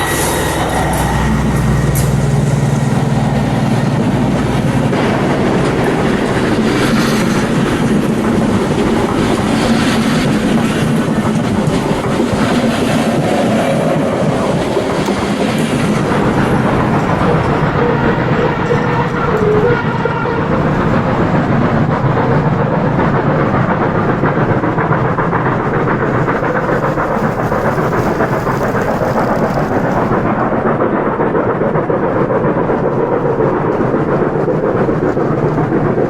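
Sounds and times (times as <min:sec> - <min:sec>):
low hum: 0:00.0 - 0:25.1.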